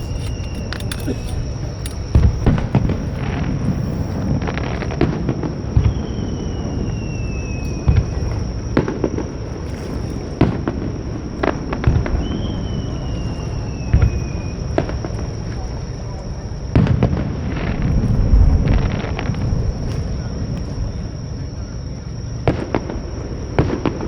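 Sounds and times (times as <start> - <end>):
firework shells bursting: 0.0 - 6.1
descending firework whistles: 1.6 - 15.5.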